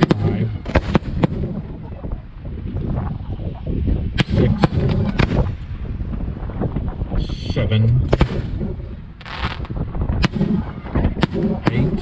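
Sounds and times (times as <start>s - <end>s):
sharp firework bangs: 0.0s - 1.6s, 8.1s - 12.0s
firework bursts rumbling: 0.0s - 12.0s.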